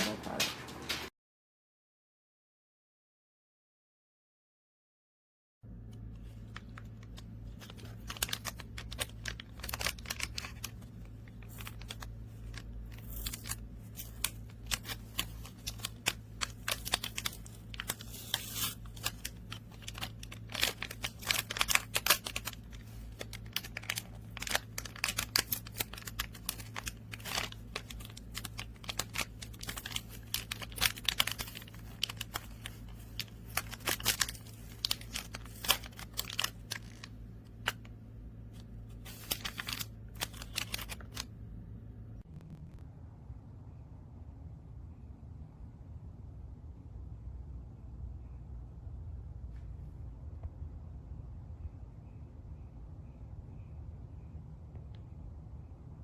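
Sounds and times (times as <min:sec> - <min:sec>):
steady low hum: 0:05.6 - 0:56.0
light crinkling: 0:06.1 - 0:37.9, 0:38.6 - 0:41.3.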